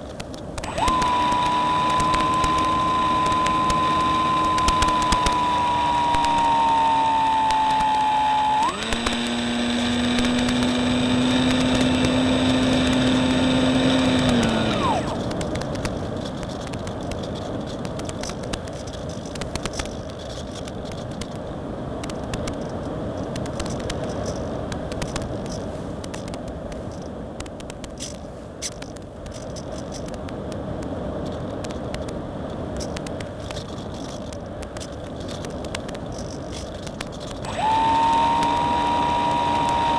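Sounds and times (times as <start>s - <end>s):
rushing air noise with crackles: 0.0s - 39.9s
model plane motor whine: 0.6s - 17.0s, 36.1s - 39.9s.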